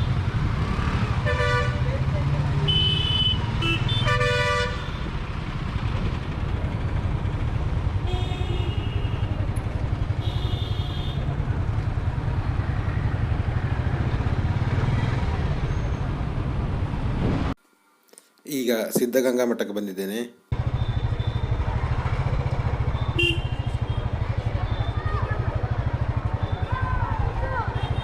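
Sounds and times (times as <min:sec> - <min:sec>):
vehicle horns honking: 0:01.2 - 0:01.9, 0:02.6 - 0:05.2, 0:08.0 - 0:09.4, 0:10.1 - 0:11.3, 0:23.0 - 0:25.1, 0:27.7 - 0:28.0
motorcycle engine rumble: 0:04.8 - 0:17.6, 0:20.5 - 0:28.0.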